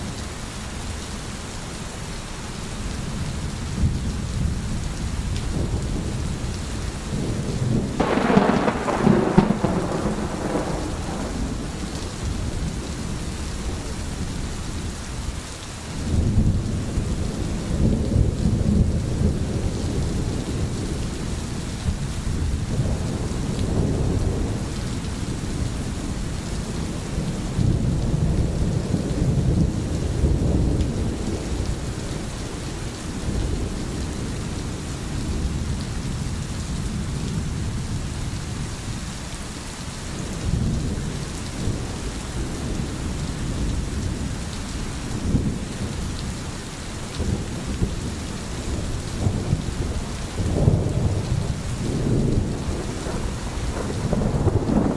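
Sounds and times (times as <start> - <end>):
steady rain hissing: 0.0 - 54.9
thunder rolling: 7.2 - 12.8, 48.7 - 54.9.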